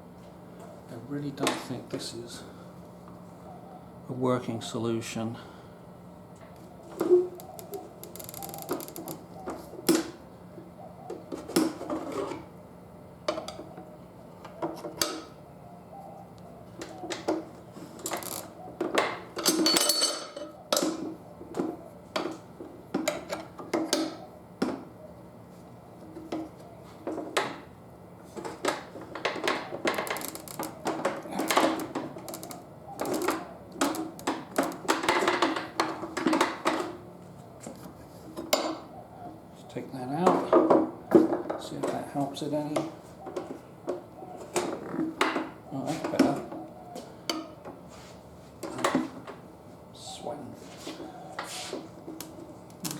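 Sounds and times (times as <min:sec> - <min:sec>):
steady low hum: 0:00.0 - 0:18.8.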